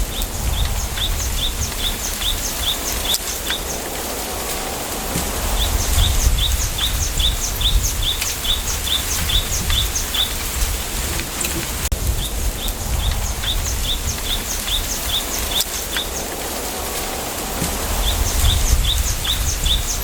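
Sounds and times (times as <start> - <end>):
small bird chirping: 0.0 - 3.9, 5.4 - 10.7, 12.2 - 16.3
wind in bamboo: 0.0 - 20.0.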